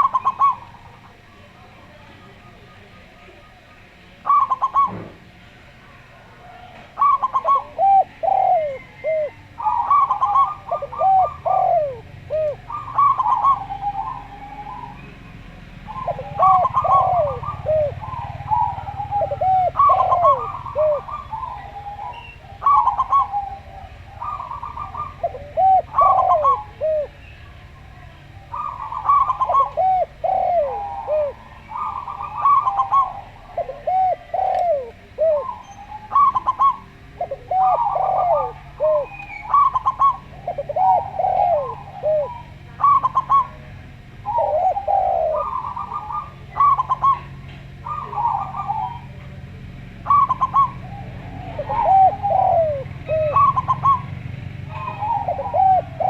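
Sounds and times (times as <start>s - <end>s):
doves cooing: 0.0s - 56.0s.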